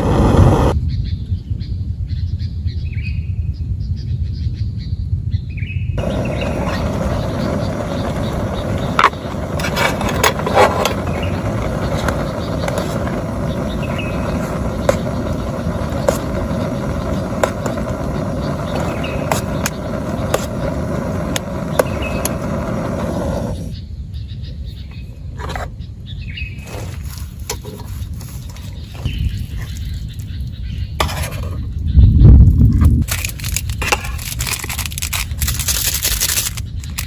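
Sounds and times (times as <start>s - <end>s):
birds chirping: 0.0s - 32.5s
low rumble: 6.0s - 23.8s.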